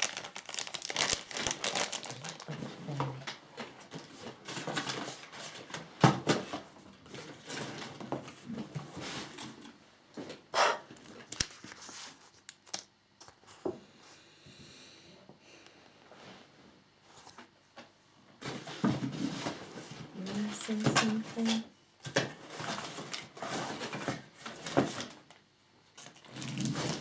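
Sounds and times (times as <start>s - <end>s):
packaging rustling: 0.0s - 3.3s.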